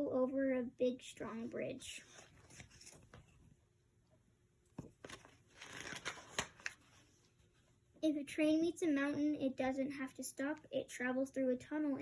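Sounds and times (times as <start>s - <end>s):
page turning paper rustle: 2.0s - 3.5s, 4.8s - 7.2s.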